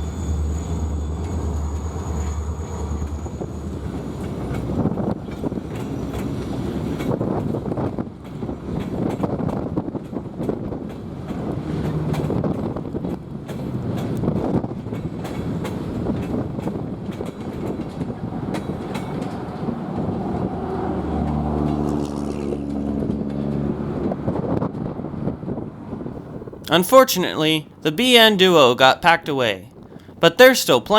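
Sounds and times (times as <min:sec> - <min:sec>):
diesel locomotive engine drone: 0:00.0 - 0:26.6
freight train wheels clicking: 0:03.8 - 0:20.4.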